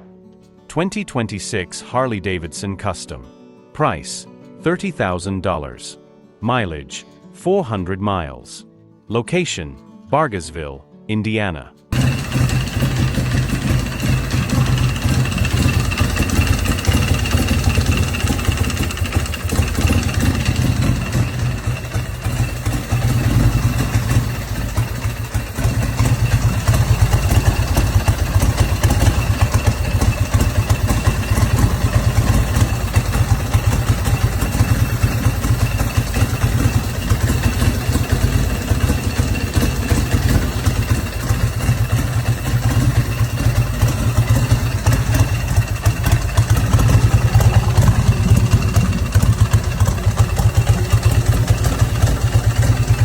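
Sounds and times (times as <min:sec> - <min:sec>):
motorcycle engine idling: 0:11.9 - 0:53.0.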